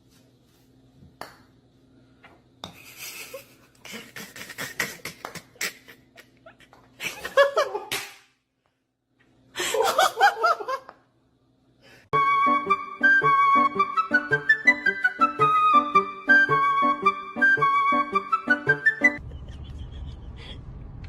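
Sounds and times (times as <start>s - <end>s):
person laughing loudly: 2.8s - 7.9s, 19.2s - 20.8s.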